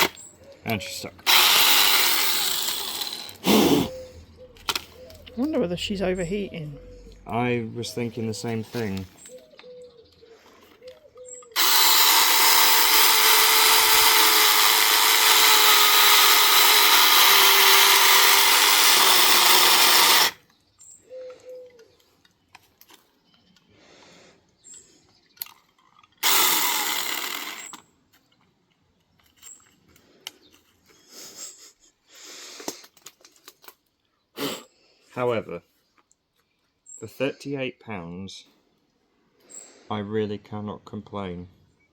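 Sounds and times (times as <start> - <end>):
chainsaw cutting into wood: 1.2 - 3.9, 11.6 - 20.4, 26.2 - 27.8.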